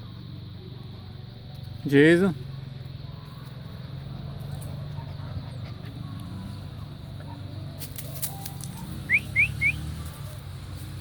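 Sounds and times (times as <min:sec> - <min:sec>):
person whistling for dog: 0:09.1 - 0:09.8.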